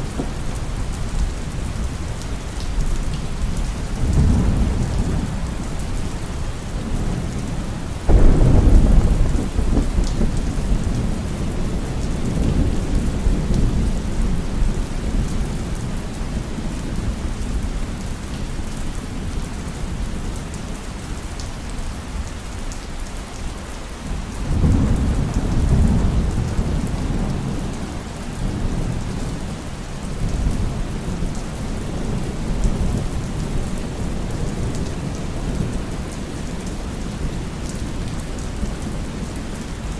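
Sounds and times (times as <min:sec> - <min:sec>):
thunder rumbling: 0:00.0 - 0:02.2, 0:03.6 - 0:15.3
heavy rain: 0:00.0 - 0:39.9.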